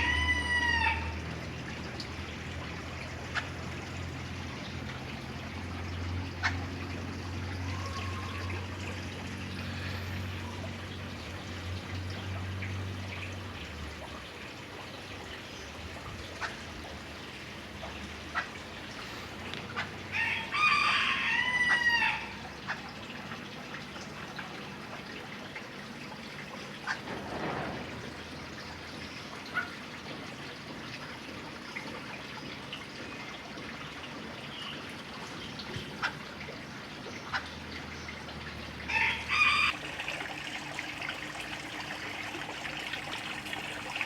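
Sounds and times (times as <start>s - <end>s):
rooster crowing: 0.0s - 1.2s, 20.1s - 22.4s, 38.9s - 40.0s
faint trickle of water: 0.0s - 44.0s.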